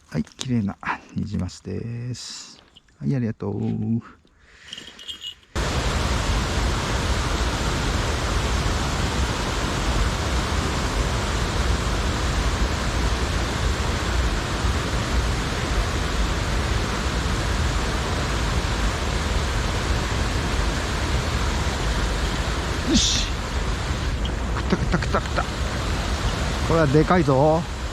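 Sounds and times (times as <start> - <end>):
stream water rushing: 5.6 - 27.9.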